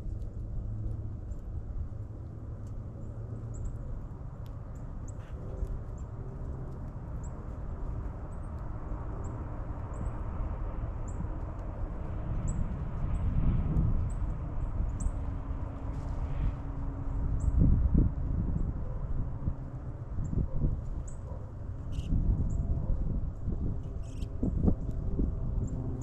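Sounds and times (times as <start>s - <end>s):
steady low rumble: 0.0s - 26.0s
small birds chirping: 21.9s - 22.2s, 23.9s - 24.3s.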